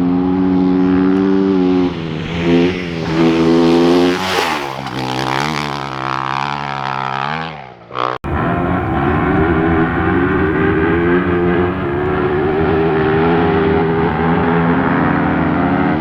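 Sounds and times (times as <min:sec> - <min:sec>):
motorcycle passing by: 0:00.8 - 0:07.6, 0:08.2 - 0:15.1
motorcycle engines revving: 0:01.4 - 0:06.2, 0:08.2 - 0:15.0.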